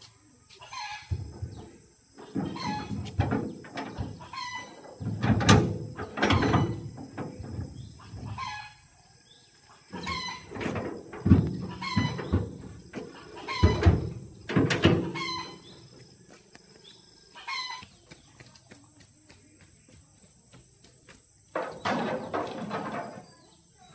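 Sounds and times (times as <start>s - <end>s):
chickens clucking: 0.2s - 18.9s.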